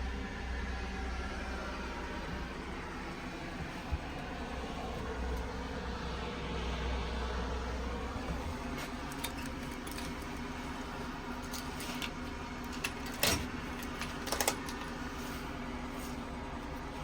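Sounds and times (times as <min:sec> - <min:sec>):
diesel engine running: 0:00.0 - 0:17.0
metallic clicks and jingling: 0:08.8 - 0:15.2.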